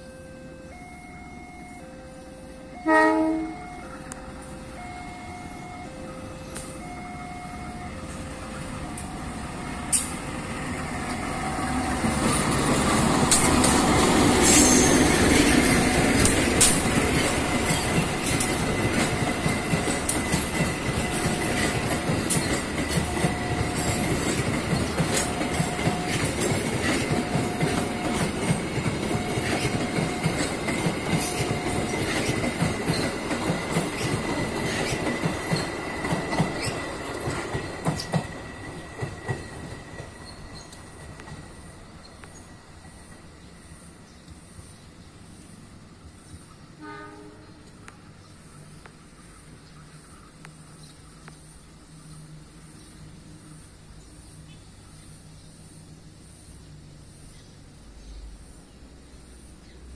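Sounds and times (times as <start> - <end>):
two-note electronic warning tone: 0.0 - 9.7
diesel locomotive rumble: 1.7 - 44.1
wheels clacking over rail joints: 11.0 - 42.4
high wheel squeal: 14.3 - 15.9, 33.9 - 37.1.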